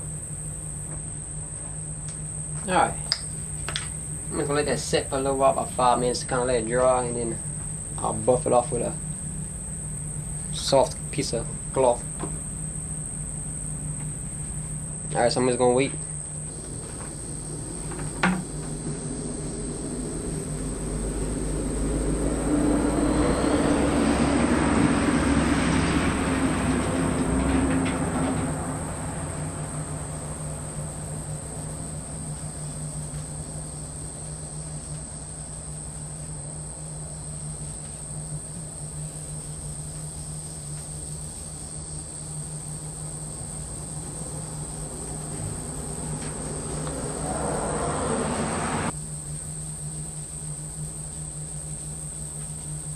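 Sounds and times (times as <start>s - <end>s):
high-pitched insect drone: 0.0s - 52.9s
passing vehicle rumble: 3.4s - 35.4s, 42.5s - 49.0s.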